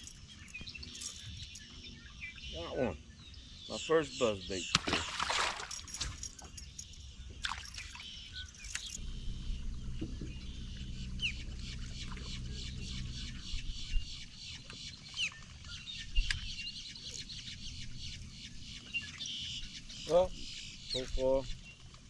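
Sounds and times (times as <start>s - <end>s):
birds chirping and calling: 0.0s - 22.0s
low steady hum: 4.7s - 22.0s.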